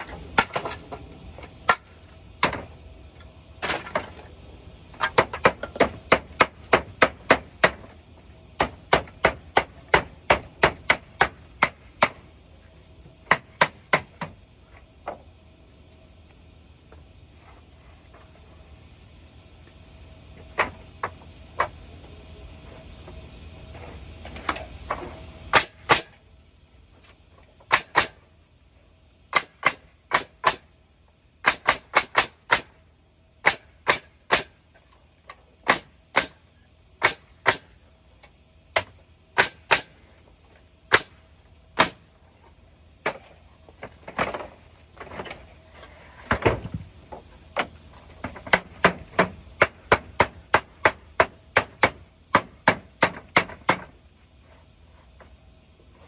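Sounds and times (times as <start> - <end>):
hammer driving nails into wood: 25.5 - 26.2, 27.7 - 28.2, 29.3 - 30.6, 31.4 - 32.7, 33.4 - 34.6, 35.6 - 36.4, 37.0 - 37.7, 38.8 - 39.9, 41.8 - 42.0.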